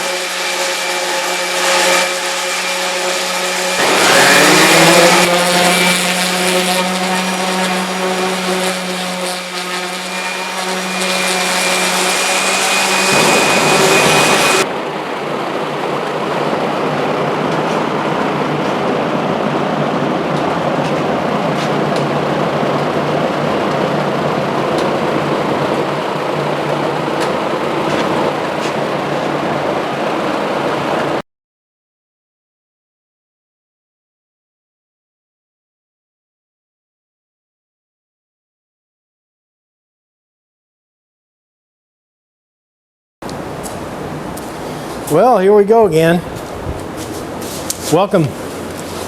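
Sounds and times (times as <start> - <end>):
power tool motor whining: 0.0 - 18.4
dull even machine noise: 0.0 - 31.2, 43.2 - 49.0.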